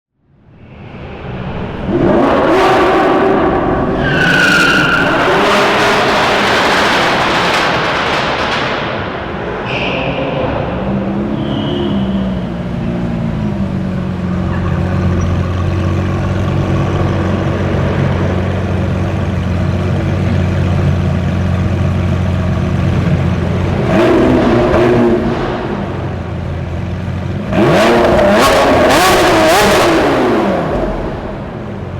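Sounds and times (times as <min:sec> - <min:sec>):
car engine revving and idling: 0:00.4 - 0:31.9
short high squeals: 0:09.6 - 0:12.5.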